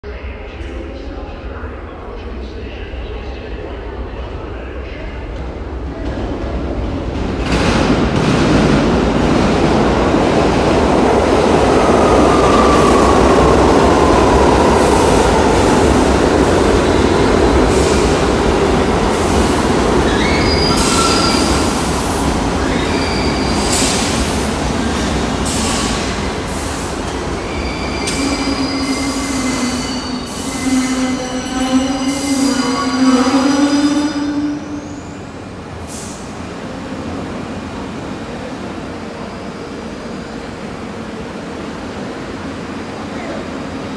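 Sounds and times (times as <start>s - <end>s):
subway train rumbling: 0.0s - 43.9s
wheel and brake squeals: 20.0s - 21.9s, 27.5s - 35.2s.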